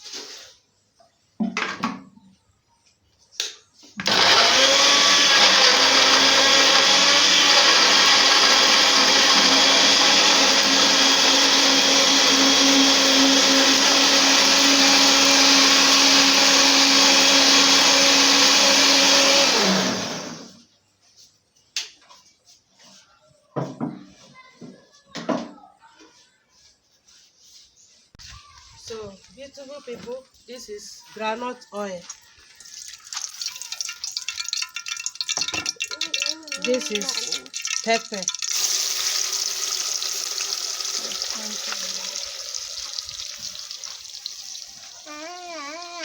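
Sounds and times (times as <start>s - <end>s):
electric blender motor: 4.0s - 20.6s, 32.9s - 46.0s.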